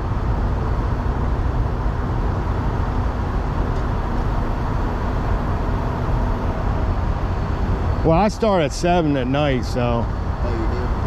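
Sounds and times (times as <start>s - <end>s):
diesel truck engine idling: 2.2s - 9.0s.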